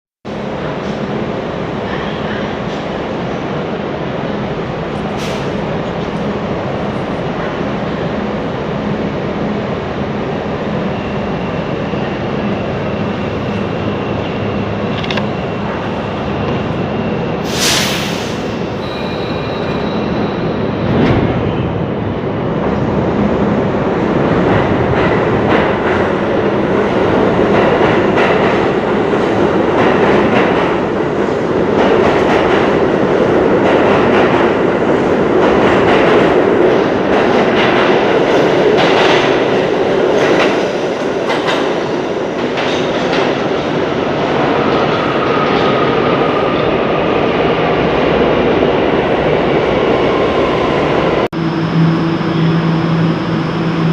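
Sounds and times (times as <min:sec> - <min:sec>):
train rumble: 0:00.3 - 0:53.9
train wheels clattering on track: 0:24.4 - 0:43.9.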